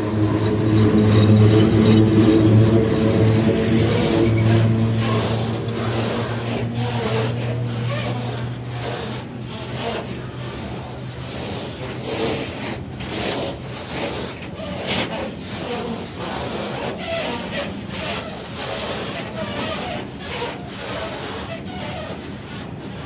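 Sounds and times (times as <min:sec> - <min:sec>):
low steady hum: 0:00.0 - 0:11.8
train wheels rumbling on rails: 0:00.0 - 0:23.0.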